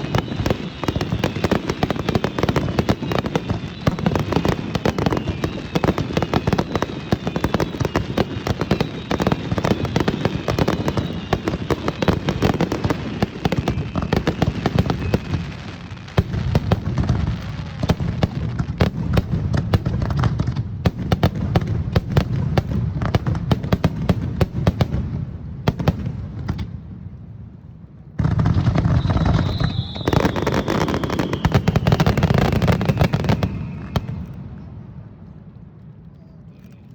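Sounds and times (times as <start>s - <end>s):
falling firework whistles: 0.0s - 18.9s, 28.4s - 34.8s
firework bursts and crackling: 0.0s - 26.9s, 28.1s - 34.8s.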